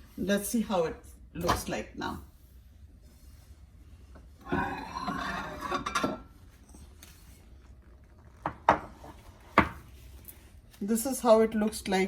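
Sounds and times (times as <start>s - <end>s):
dish scraping and rattling: 4.5s - 6.8s.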